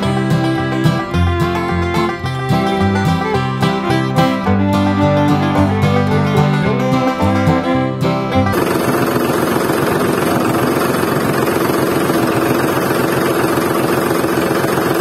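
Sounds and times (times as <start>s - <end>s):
music: 0.0s - 9.2s
small petrol engine running: 8.4s - 15.0s.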